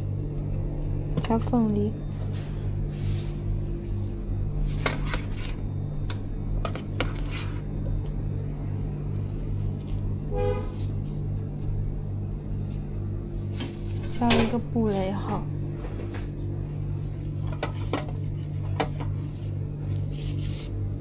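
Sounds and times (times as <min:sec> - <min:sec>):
steady low hum: 0:00.0 - 0:21.0
utensils and containers clattering: 0:13.6 - 0:14.6.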